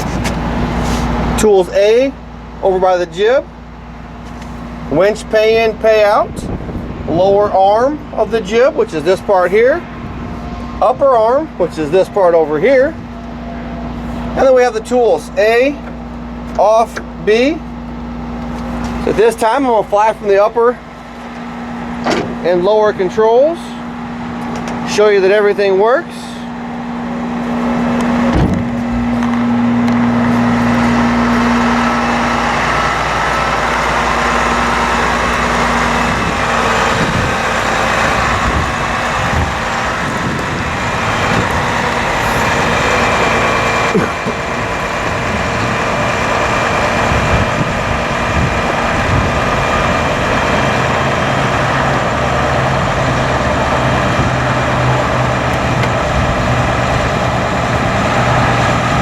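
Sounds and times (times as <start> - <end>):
hydraulic hum and hiss: 0.0 - 1.4
diesel engine running: 0.0 - 59.0
sharp mechanical clunk: 22.0 - 22.4.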